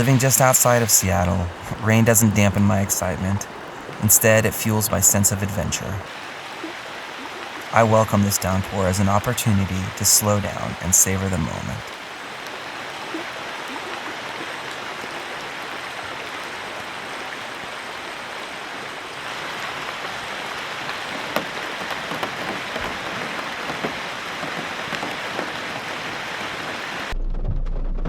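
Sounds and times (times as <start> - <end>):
heavy rain falling: 0.0 - 27.2.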